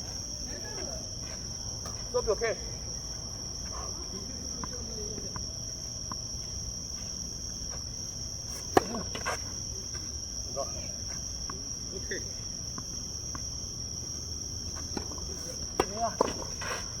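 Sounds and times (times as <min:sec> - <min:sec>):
insects droning: 0:00.0 - 0:17.0
racket striking tennis ball: 0:08.6 - 0:09.2, 0:14.9 - 0:16.7.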